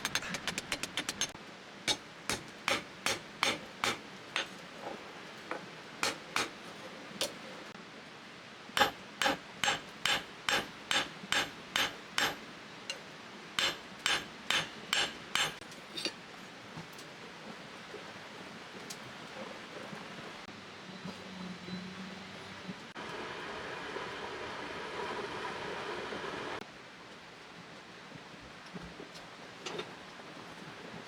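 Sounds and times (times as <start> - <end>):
hammer striking metal blade: 0.0 - 4.5, 6.0 - 6.5, 8.8 - 12.4, 13.6 - 15.6.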